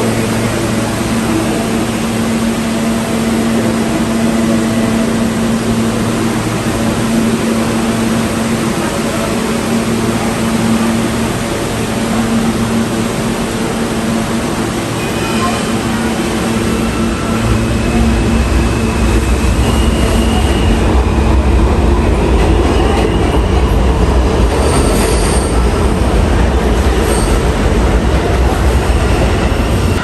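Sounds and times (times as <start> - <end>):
train wheels rumbling and rattling: 0.0 - 30.0
faint high wheel squeals: 16.7 - 20.9.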